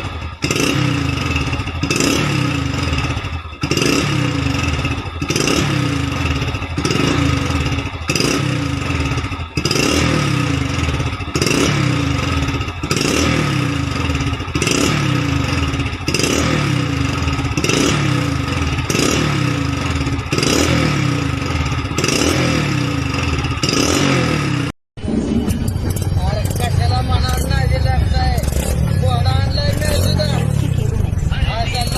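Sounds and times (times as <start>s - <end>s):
motorcycle engine revving: 0.0s - 31.9s.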